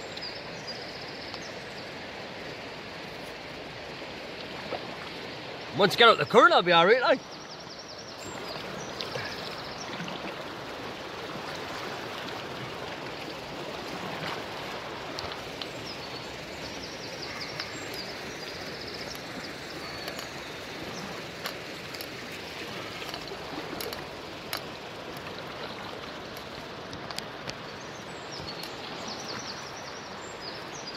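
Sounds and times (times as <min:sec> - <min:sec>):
river current rushing: 0:00.0 - 0:30.9
bird chirping trills: 0:15.6 - 0:22.1, 0:27.7 - 0:30.9.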